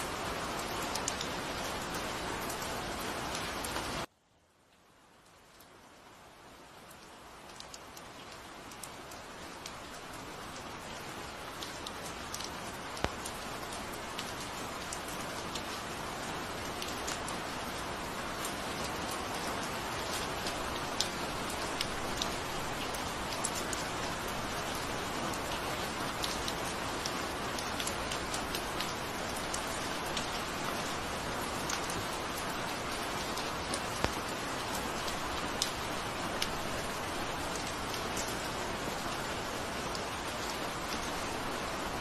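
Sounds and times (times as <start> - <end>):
raindrops ticking on a surface: 0.0 - 42.0
steady rain hiss: 0.0 - 42.0.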